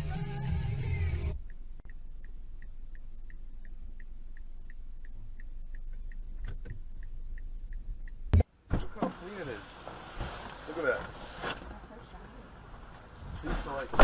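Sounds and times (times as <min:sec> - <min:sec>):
engine and road rumble: 0:00.0 - 0:14.0
turn signal ticking: 0:01.0 - 0:08.7.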